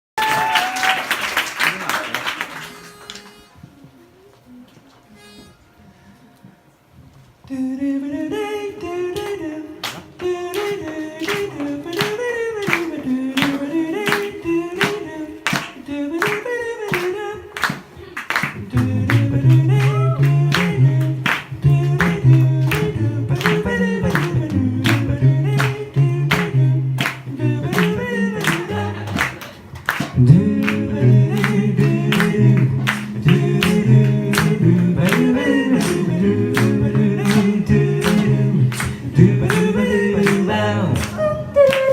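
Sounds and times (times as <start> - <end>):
voices singing in close harmony: 7.5 - 17.9, 18.6 - 41.9
low bass voice part: 30.2 - 41.5.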